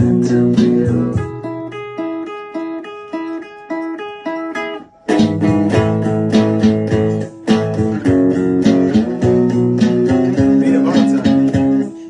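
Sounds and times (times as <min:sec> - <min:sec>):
picked guitar notes: 0:00.0 - 0:12.0
strummed guitar: 0:00.0 - 0:12.0.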